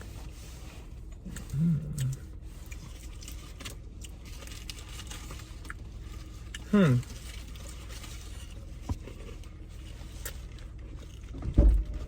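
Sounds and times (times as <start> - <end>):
low hummed voice: 1.2 - 2.4, 6.6 - 7.2.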